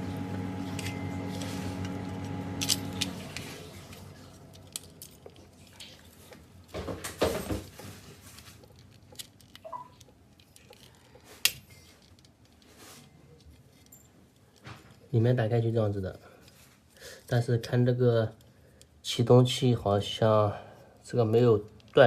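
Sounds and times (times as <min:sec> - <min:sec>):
steady hum: 0:00.0 - 0:06.2
small clicks and scrapes: 0:07.8 - 0:15.1.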